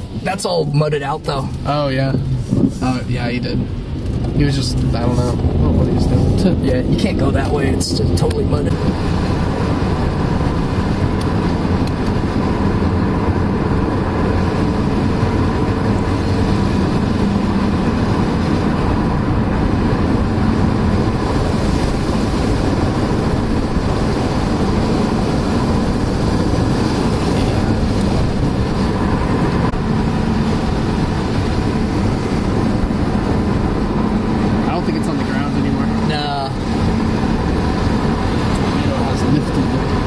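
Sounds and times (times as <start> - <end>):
car interior road and engine noise: 0.0 - 40.0.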